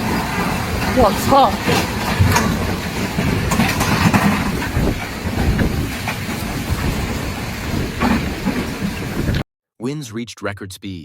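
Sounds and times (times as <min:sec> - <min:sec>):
storm wind on microphone: 0:00.0 - 0:09.4
knocks and rattles: 0:01.0 - 0:09.4.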